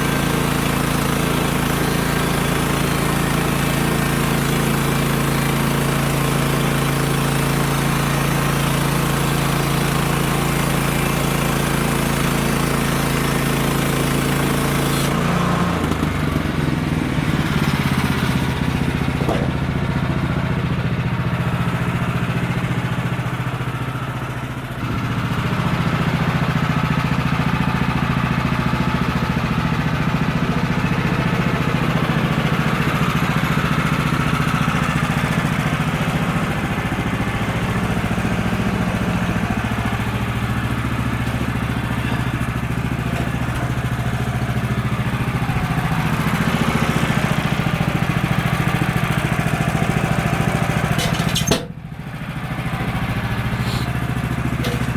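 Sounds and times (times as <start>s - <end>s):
sawmill engine under load: 0.0s - 54.9s
band blade sawing wood: 13.7s - 19.7s, 53.5s - 54.9s.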